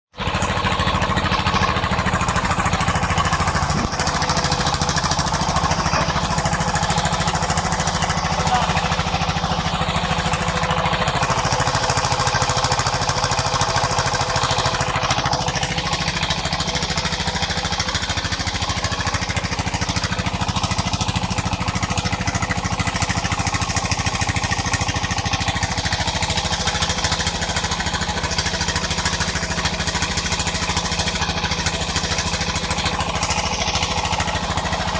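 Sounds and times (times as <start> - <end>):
engine thudding: 0.2 - 13.6
saw cutting: 0.4 - 20.2.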